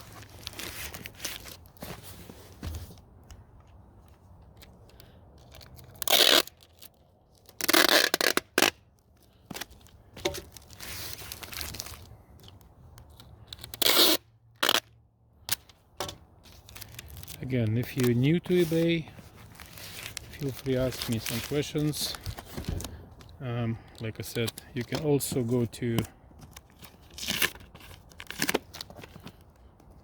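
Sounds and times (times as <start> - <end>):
packing material rustling: 0.0 - 3.1, 4.9 - 14.8, 16.4 - 29.6
packing tape pulled off roll: 4.9 - 15.8, 16.4 - 23.4, 26.4 - 29.6.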